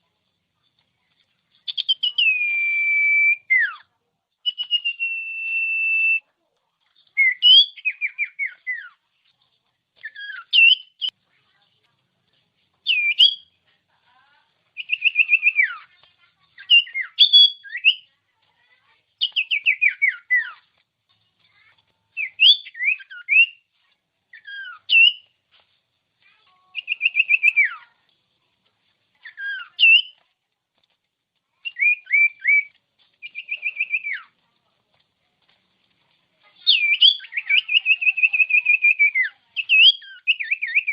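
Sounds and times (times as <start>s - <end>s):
bird singing whistled phrases: 1.7s - 6.2s, 7.2s - 8.9s, 10.1s - 11.1s, 12.8s - 13.5s, 14.8s - 15.8s, 16.6s - 18.1s, 19.2s - 20.6s, 22.2s - 23.6s, 24.4s - 25.3s, 26.8s - 27.8s, 29.3s - 30.2s, 31.6s - 34.3s, 36.6s - 40.9s.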